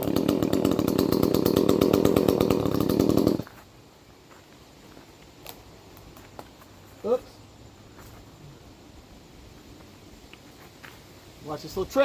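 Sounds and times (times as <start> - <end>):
chainsaw engine running: 0.0 - 3.5.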